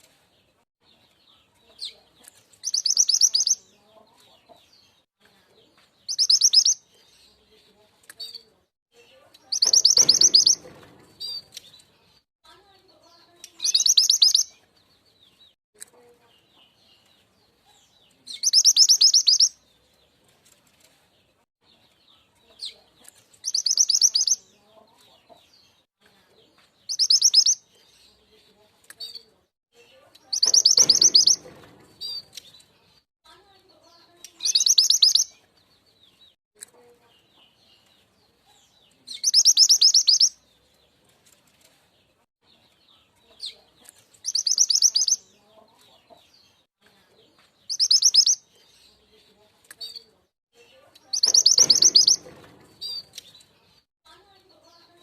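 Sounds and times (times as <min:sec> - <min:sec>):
bird trilling song: 0:00.9 - 0:04.0, 0:06.0 - 0:07.5, 0:08.2 - 0:12.2, 0:13.1 - 0:15.6, 0:17.9 - 0:19.8, 0:21.7 - 0:25.8, 0:26.8 - 0:28.3, 0:29.0 - 0:33.0, 0:33.7 - 0:36.4, 0:37.1 - 0:40.8, 0:42.5 - 0:46.7, 0:47.6 - 0:53.9.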